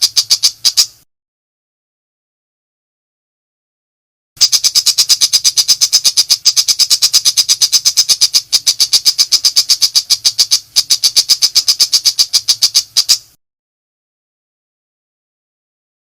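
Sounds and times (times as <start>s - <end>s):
bird rapid chatter: 0.0s - 1.0s, 4.4s - 13.4s.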